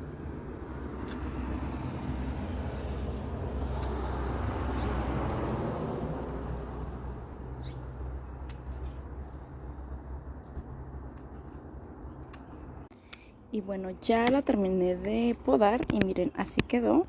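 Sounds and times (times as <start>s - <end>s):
road vehicle passing by: 0.0s - 12.9s
pruning shears clicking: 0.6s - 1.6s, 3.0s - 5.7s, 8.3s - 9.6s, 11.0s - 13.2s.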